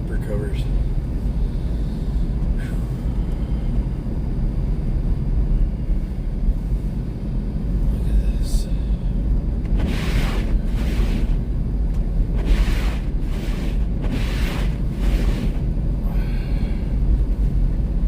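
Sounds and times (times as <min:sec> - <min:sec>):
tyres and engine rumble: 0:00.0 - 0:18.0
tyres swishing through snow: 0:09.8 - 0:11.4, 0:12.4 - 0:15.6.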